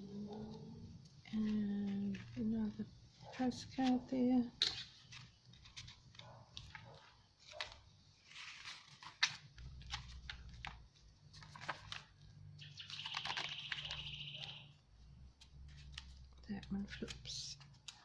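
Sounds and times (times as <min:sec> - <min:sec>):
paper pages rustling: 0:00.3 - 0:04.0, 0:04.6 - 0:18.0
bird trilling: 0:12.6 - 0:14.8.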